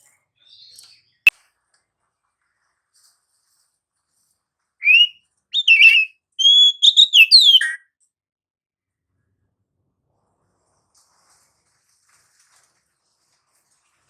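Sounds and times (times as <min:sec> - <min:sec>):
bird singing whistled notes: 0:04.8 - 0:07.8.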